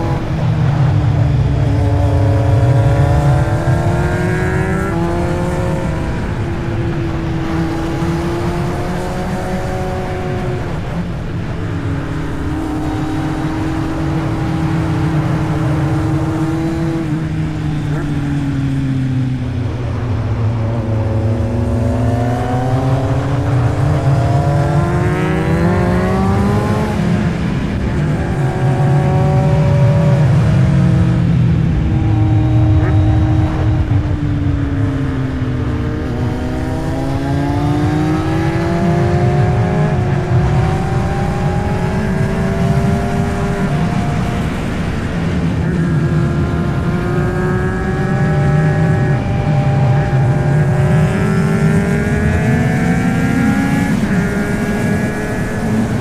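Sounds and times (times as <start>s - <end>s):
motorcycle engine running: 0.0s - 56.0s
wind and road noise: 0.0s - 56.0s.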